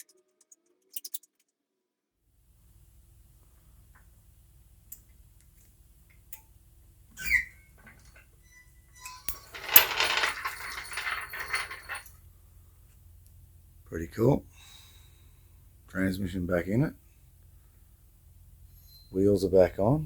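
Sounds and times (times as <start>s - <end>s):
metal parts clattering: 9.1s - 12.1s
metallic clinks: 9.1s - 12.1s.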